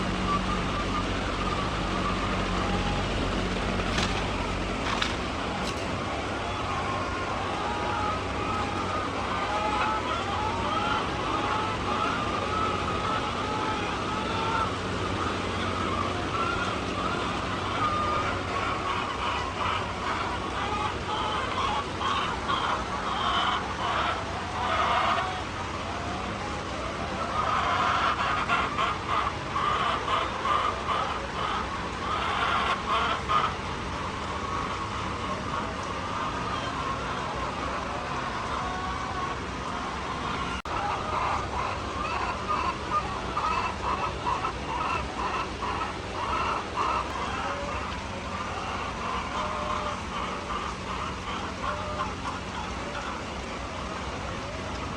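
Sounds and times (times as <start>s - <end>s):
steady low rumble: 0.0s - 9.4s
hens clucking: 0.0s - 54.9s
low background hum: 0.0s - 54.9s.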